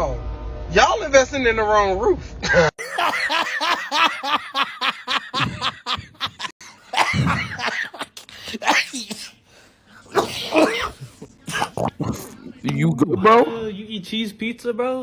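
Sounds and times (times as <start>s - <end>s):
man laughing hard: 2.4s - 8.9s
man coughing: 5.3s - 9.4s, 10.0s - 12.4s.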